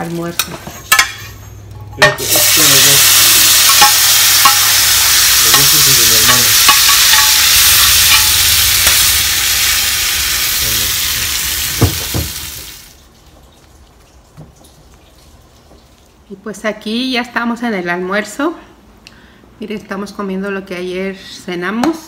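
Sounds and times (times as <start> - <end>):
beans sizzling in a skillet: 2.2 - 13.0.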